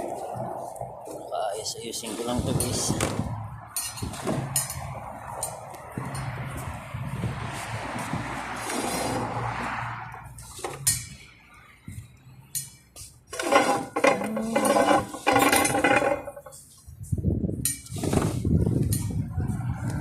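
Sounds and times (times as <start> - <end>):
low rumbling noise: 0.0 - 10.5
dishes and utensils clattering: 12.6 - 16.6.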